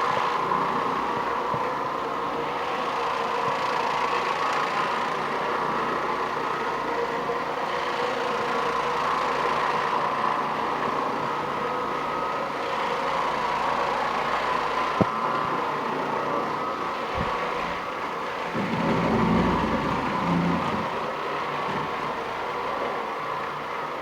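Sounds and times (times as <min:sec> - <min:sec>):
floor cleaning machine motor: 0:00.0 - 0:24.0.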